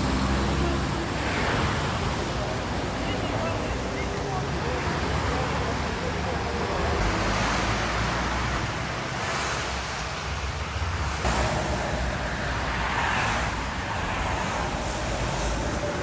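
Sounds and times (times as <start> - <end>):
vehicles passing on wet road: 0.0 - 16.0
low rumble: 11.2 - 16.0.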